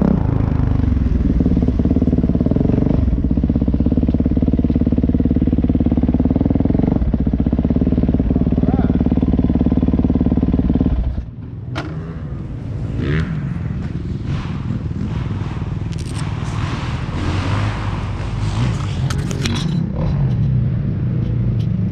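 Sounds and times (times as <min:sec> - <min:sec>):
low vehicle engine rumble: 0:00.0 - 0:21.9
knocks and scrapes: 0:13.8 - 0:20.6.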